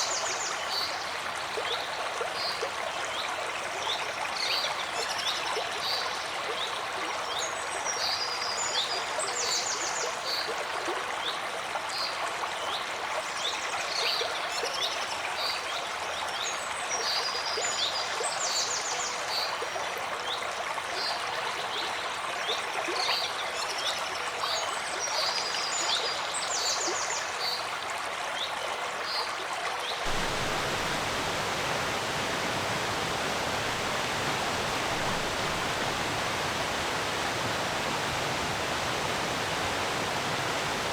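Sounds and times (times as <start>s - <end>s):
forest stream babbling: 0.0s - 13.6s, 30.1s - 40.9s
deep even water rush: 30.1s - 40.9s.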